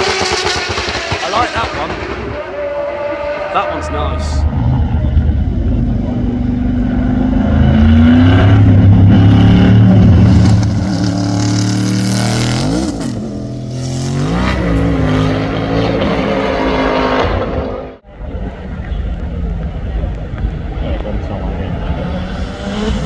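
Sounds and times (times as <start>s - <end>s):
car engine revving: 0.0s - 18.0s, 21.0s - 23.0s.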